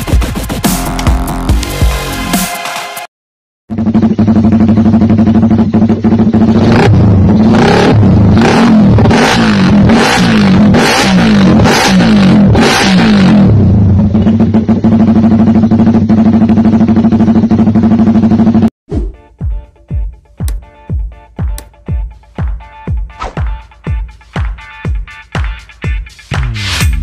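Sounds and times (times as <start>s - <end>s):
motorcycle engine revving: 3.7s - 18.7s.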